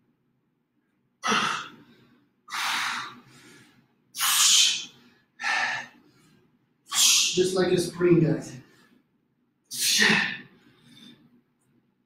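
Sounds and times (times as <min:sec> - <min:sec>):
man breathing forcefully: 0:01.2 - 0:07.4.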